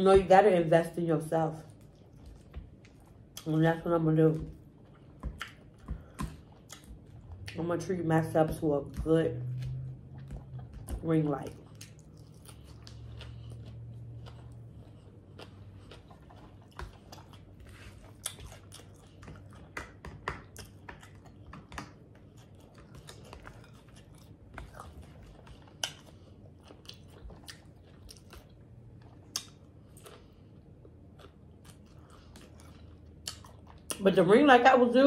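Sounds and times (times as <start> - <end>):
person chewing crunchy salad: 1.6 - 7.7, 8.6 - 34.1
wet mouth smacks: 29.3 - 29.6.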